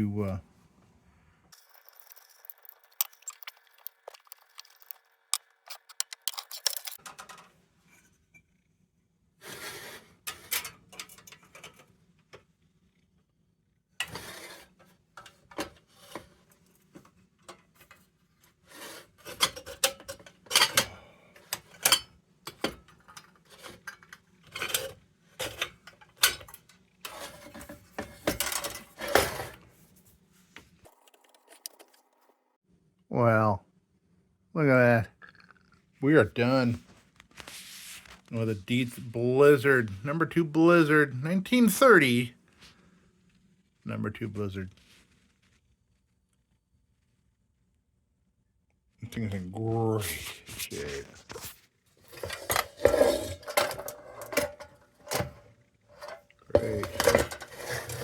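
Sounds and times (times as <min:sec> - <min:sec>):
metal and glass clinking: 0:01.6 - 0:07.5, 0:19.4 - 0:21.0.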